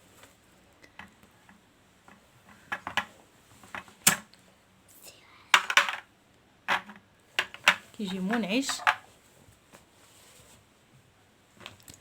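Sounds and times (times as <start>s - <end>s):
kitchenware clicking and knocking: 6.7s - 9.0s.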